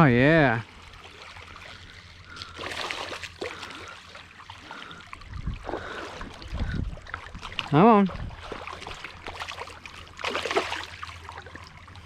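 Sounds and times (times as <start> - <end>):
river water trickling: 0.0 - 12.0.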